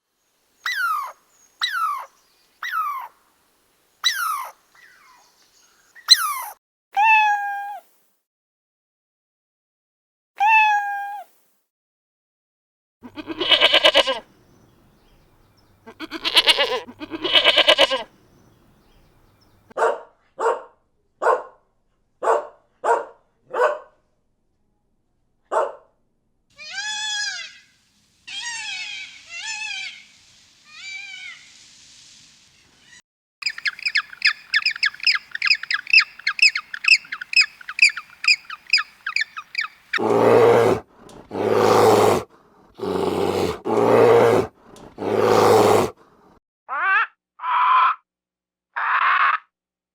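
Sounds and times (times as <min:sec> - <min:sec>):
farm animal calls: 0:00.7 - 0:03.1, 0:13.0 - 0:14.3, 0:15.8 - 0:18.1, 0:26.6 - 0:27.7, 0:28.3 - 0:30.0, 0:33.4 - 0:42.2
loud low animal calls: 0:13.0 - 0:14.2, 0:15.9 - 0:18.1, 0:33.4 - 0:42.2, 0:42.8 - 0:45.9
fast high chirping: 0:33.4 - 0:40.0.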